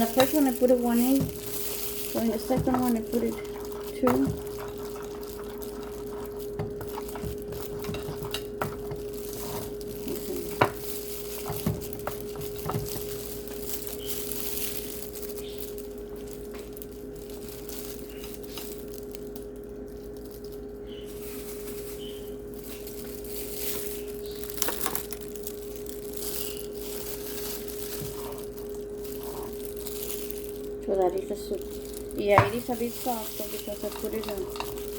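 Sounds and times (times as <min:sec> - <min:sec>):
spoon clinking and scraping pot: 0:00.0 - 0:09.9, 0:33.4 - 0:34.9.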